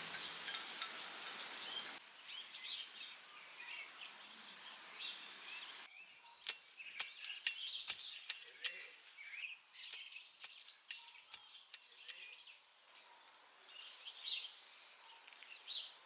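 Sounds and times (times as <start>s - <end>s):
faint songbirds chirping: 1.6s - 16.0s
sharp clicks: 6.4s - 9.0s, 9.9s - 12.4s.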